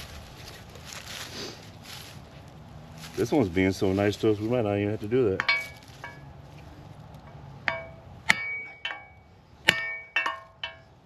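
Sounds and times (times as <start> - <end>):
hammer ringing on steel: 7.6 - 11.0.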